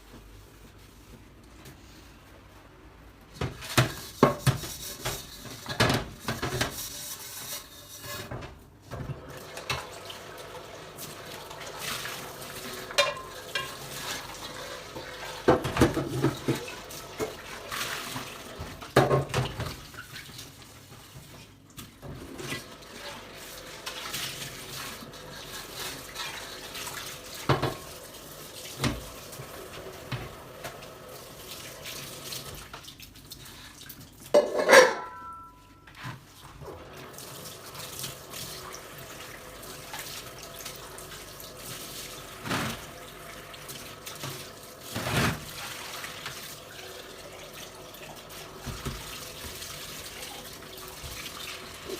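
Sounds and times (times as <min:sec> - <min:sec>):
tap water running into sink: 0:08.9 - 0:21.3, 0:21.9 - 0:34.5, 0:36.6 - 0:51.9
dishes clinking: 0:12.9 - 0:14.0, 0:34.3 - 0:35.9.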